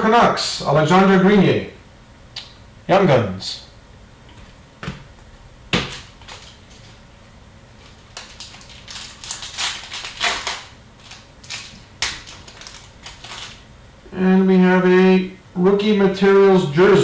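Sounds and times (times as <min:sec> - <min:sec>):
trading cards rustling and clicking: 0:05.8 - 0:07.0, 0:07.8 - 0:13.6.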